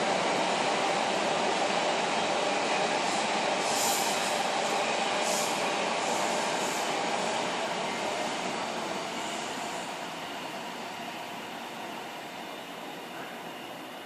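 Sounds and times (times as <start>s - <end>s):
train wheels rumbling on rails: 0.0s - 14.0s
brief high hisses: 3.6s - 4.4s.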